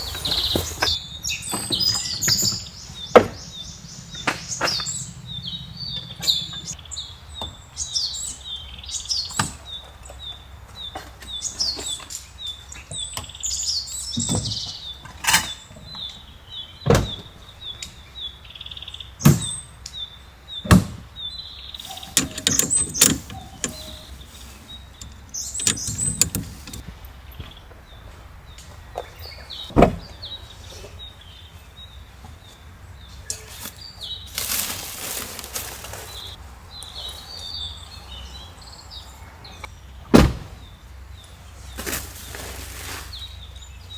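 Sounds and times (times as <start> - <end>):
birdsong: 0.0 - 43.9
gear knocking and clattering: 21.8 - 26.8.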